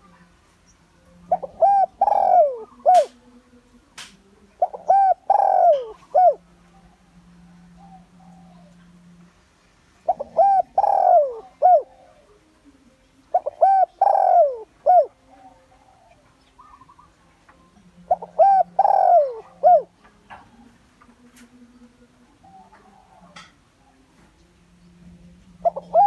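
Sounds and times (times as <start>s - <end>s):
dove cooing: 1.1s - 3.2s, 4.6s - 9.2s, 10.0s - 12.5s, 13.3s - 17.4s, 18.0s - 21.5s, 22.3s - 24.4s, 25.5s - 26.0s.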